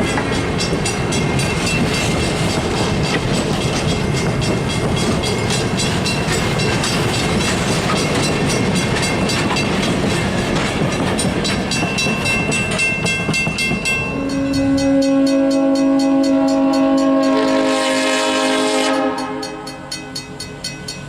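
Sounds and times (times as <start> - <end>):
train rumble and clatter: 0.0 - 21.0
locomotive horn chord: 14.1 - 20.0.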